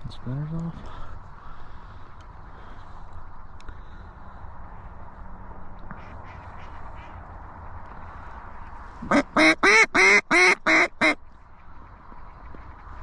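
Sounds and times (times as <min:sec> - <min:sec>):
low wind: 0:00.0 - 0:13.0
duck call quacks: 0:09.1 - 0:11.2.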